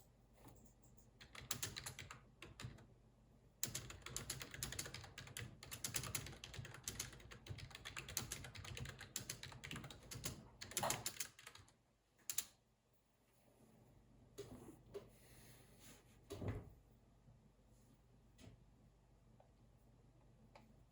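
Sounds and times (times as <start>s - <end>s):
fast keyboard typing: 1.2s - 2.9s, 3.6s - 12.5s.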